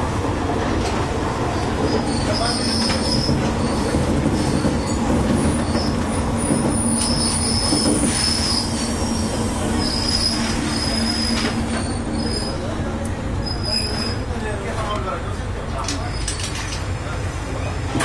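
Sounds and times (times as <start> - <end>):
railcar engine and wheels rumbling: 0.0 - 18.0
high wheel squeal: 1.8 - 12.7, 13.4 - 14.2.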